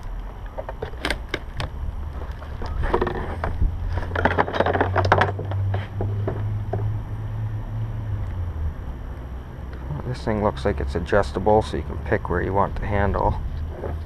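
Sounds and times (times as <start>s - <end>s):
wind rumbling on microphone: 0.0s - 14.0s
jackhammer parts clattering and scraping: 0.6s - 6.4s.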